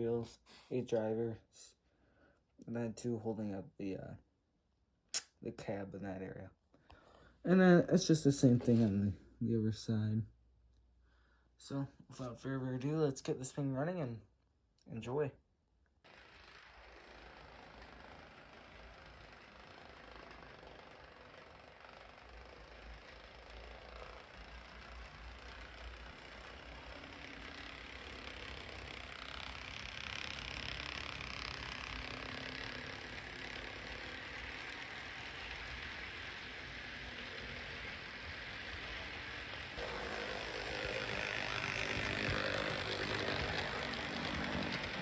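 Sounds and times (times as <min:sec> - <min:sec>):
model train motor running: 0:16.1 - 0:45.0.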